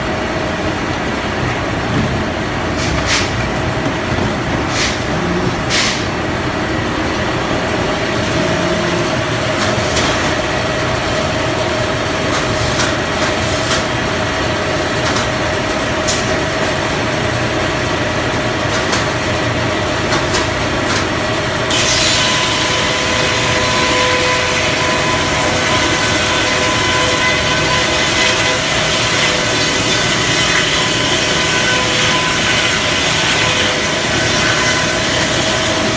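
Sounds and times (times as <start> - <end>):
circular sawmill running: 0.0 - 35.9.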